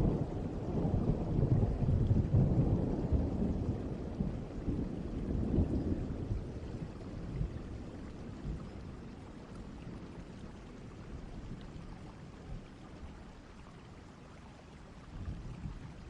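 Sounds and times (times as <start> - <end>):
low thunder rumble: 0.0 - 11.8
steady rain: 0.0 - 16.0.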